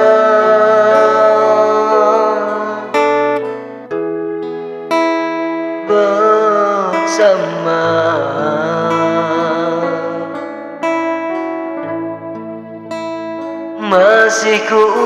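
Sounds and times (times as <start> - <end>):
person singing with vibrato: 0.0 - 3.8, 5.7 - 11.1, 13.7 - 15.0
plucked guitar-like keyboard chords: 0.0 - 15.0.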